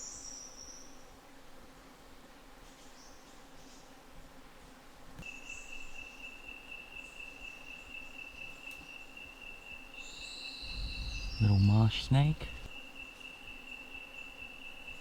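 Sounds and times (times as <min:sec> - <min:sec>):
high-pitched insect call: 0:05.2 - 0:15.0
higher-pitched insect call: 0:05.2 - 0:15.0.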